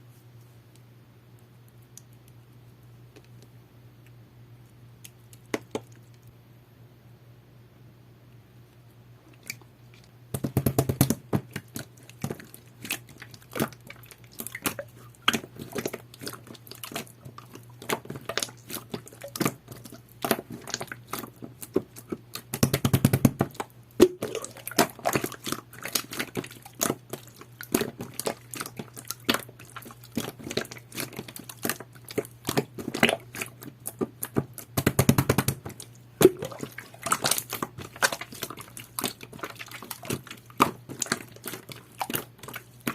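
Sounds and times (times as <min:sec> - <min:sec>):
crackling squishes: 0:01.4 - 0:06.3, 0:09.3 - 0:10.2, 0:10.9 - 0:42.9
slime being squished by hand: 0:10.4 - 0:42.9.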